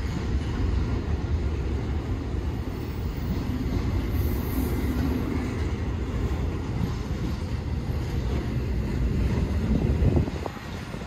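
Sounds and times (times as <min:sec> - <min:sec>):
train rumbling past: 0:00.0 - 0:11.0
wind noise on microphone: 0:02.9 - 0:11.0.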